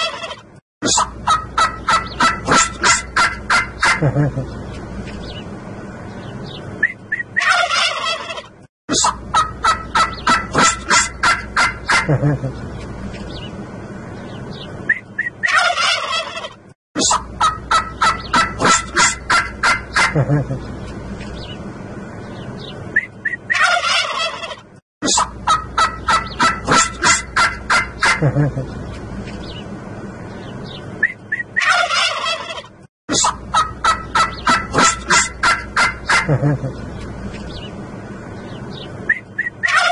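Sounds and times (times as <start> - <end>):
turkeys gobbling: 0.0 - 4.5, 6.8 - 12.6, 14.9 - 20.7, 23.2 - 28.7, 31.0 - 36.8, 39.1 - 39.9.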